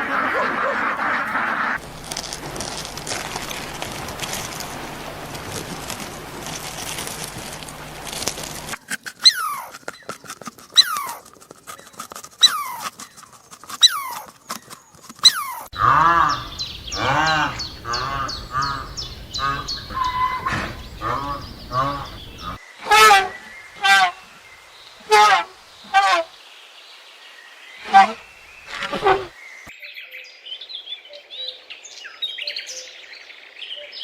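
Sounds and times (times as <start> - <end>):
animal squeaks: 15.2 - 23.2
honk-like animal calls: 15.8 - 24.2.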